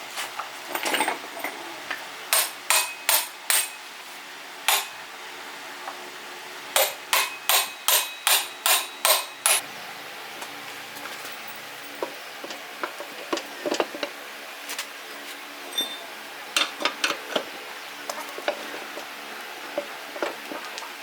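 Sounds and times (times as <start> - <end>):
hammer striking metal: 2.4 - 3.8, 6.8 - 9.6.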